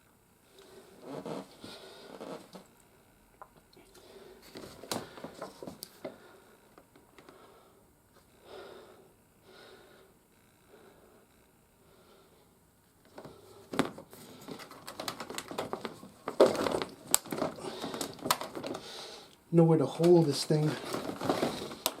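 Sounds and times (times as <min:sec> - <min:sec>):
plastic toy parts rustling: 0:13.2 - 0:18.8, 0:20.2 - 0:22.0.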